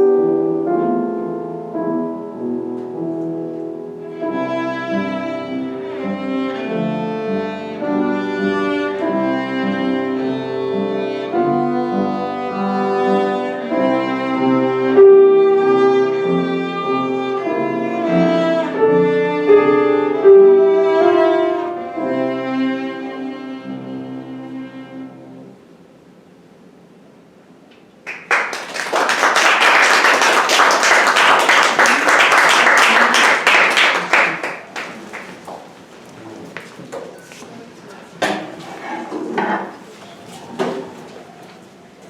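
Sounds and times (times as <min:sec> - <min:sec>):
piano accompaniment: 0:00.0 - 0:25.6
bowed string instrument melody: 0:00.3 - 0:25.6.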